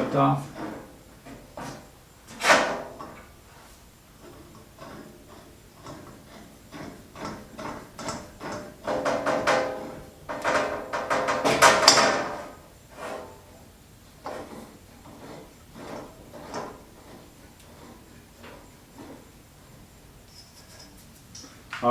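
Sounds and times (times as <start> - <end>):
metal clinking and scraping: 20.2 - 21.3.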